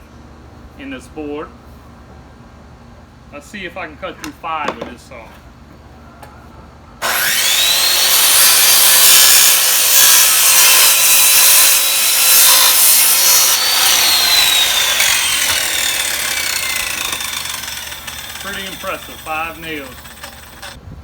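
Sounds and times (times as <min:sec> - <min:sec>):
circular saw cutting wood: 0:07.0 - 0:20.8.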